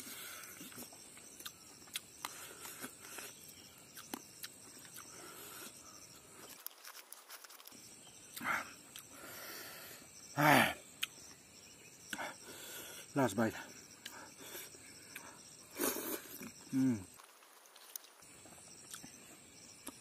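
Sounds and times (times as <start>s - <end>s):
high insect drone: 0.0s - 20.0s
person chewing with lip smacks: 0.7s - 3.3s.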